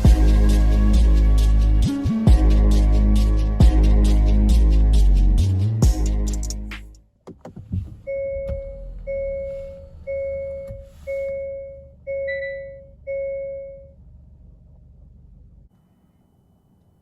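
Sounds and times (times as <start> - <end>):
car warning chime: 8.1 - 14.0.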